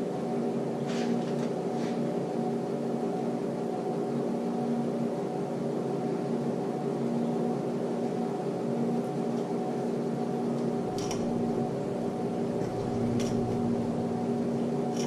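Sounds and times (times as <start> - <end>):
electric motor humming: 10.8 - 15.0.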